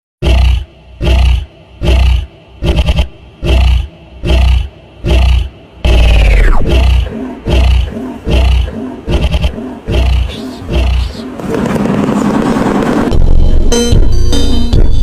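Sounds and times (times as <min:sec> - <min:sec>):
animal roaring: 0:00.2 - 0:11.4.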